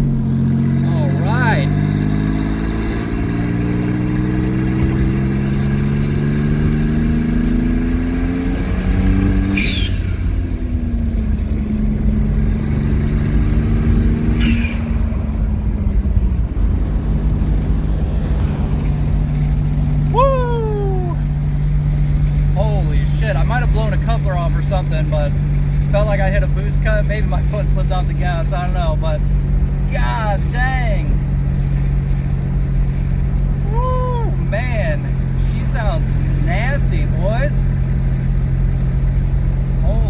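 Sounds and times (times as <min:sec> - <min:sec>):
car engine accelerating: 0:00.0 - 0:40.0
gear change chirp: 0:08.9 - 0:12.6, 0:13.8 - 0:19.8.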